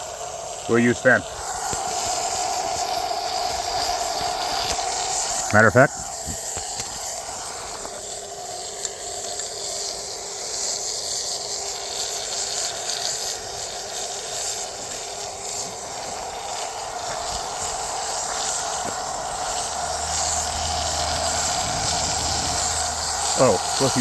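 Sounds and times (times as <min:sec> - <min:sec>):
compressor motor humming: 0:00.0 - 0:08.0, 0:15.6 - 0:24.0
fire hissing and popping: 0:00.0 - 0:24.0.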